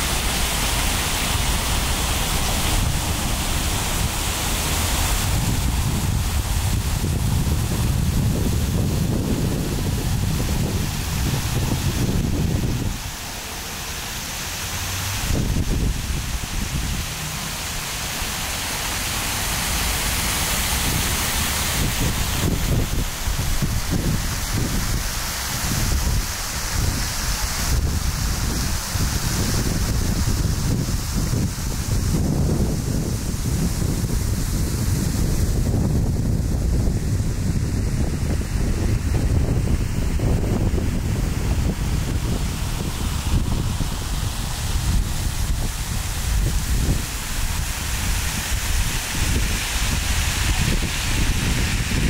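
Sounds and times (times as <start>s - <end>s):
fountain water cascading: 0.0s - 52.0s
wind buffeting microphone: 0.0s - 52.0s.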